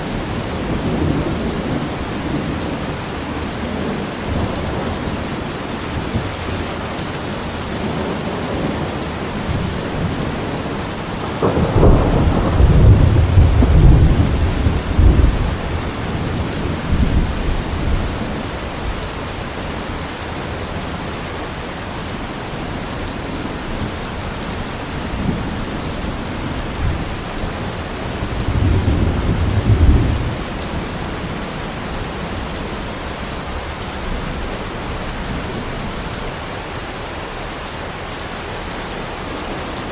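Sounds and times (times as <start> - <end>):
heavy rain: 0.0 - 39.9
thunder rumbling: 7.7 - 19.2, 22.9 - 36.1.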